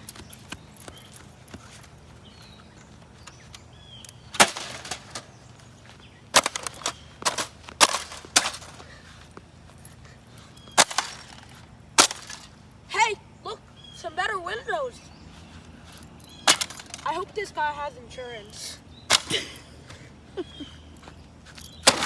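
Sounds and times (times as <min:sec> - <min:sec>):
sharp crashing impacts: 0:04.4 - 0:05.3, 0:10.8 - 0:12.5.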